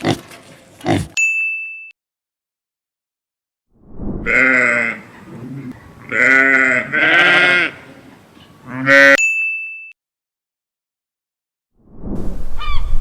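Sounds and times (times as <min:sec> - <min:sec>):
farm animal bleating: 0:04.3 - 0:08.0, 0:08.6 - 0:09.2.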